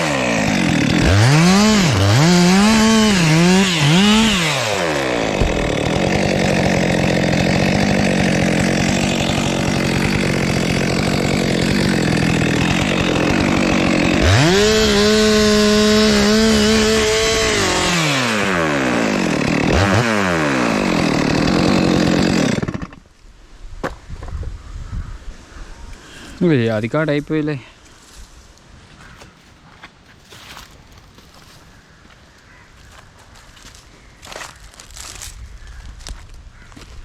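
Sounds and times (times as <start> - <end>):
chainsaw cutting wood: 0.0 - 23.1.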